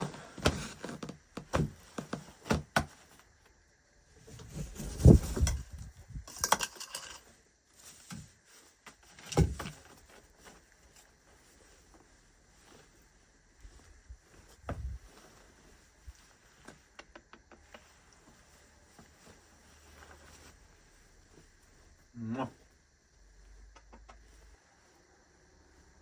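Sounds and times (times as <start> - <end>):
dull thud: 14.5 - 15.1.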